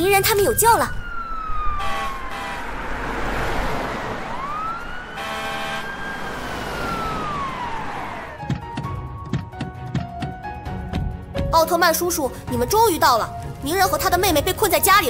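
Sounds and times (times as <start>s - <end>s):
fire engine siren wailing: 0.0s - 8.6s
truck engine rumble: 0.0s - 11.4s.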